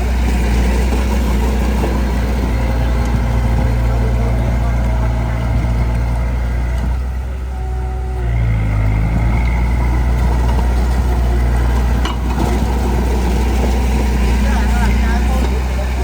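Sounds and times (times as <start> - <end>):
heavy diesel engine drone: 0.0 - 16.0.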